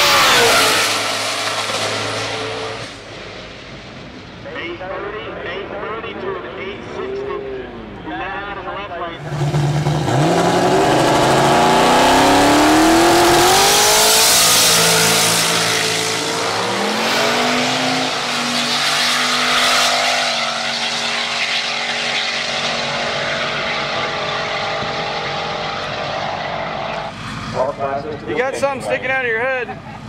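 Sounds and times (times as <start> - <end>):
drag car engine accelerating: 0.0 - 3.8, 9.2 - 28.2.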